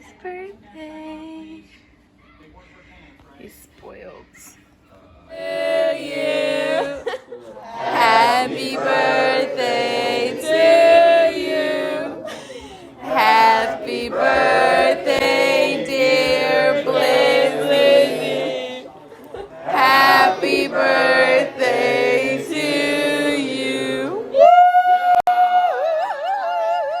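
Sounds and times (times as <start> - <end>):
people singing with music: 5.3 - 12.4, 13.0 - 18.9, 19.6 - 24.3.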